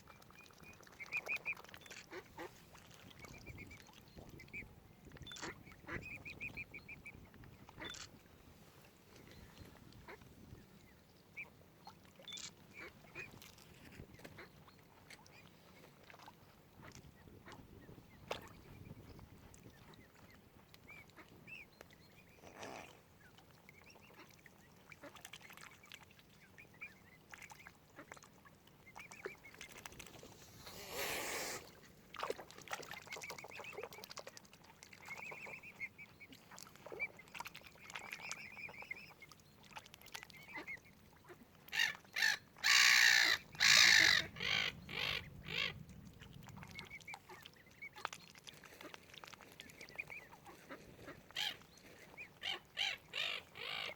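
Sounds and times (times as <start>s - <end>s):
waterfowl calling: 40.4s - 45.8s, 46.7s - 53.9s.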